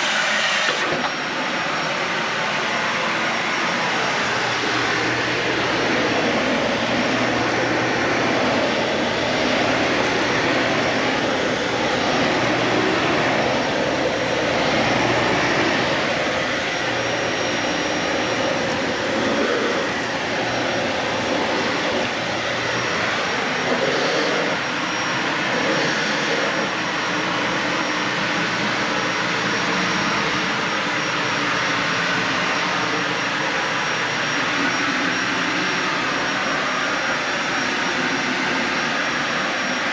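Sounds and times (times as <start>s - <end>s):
vacuum cleaner on carpet: 0.0s - 39.9s.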